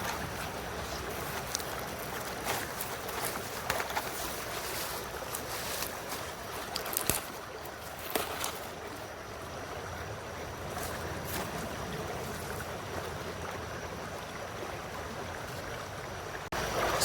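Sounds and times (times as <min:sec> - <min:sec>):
river flowing over stones: 0:00.0 - 0:17.0.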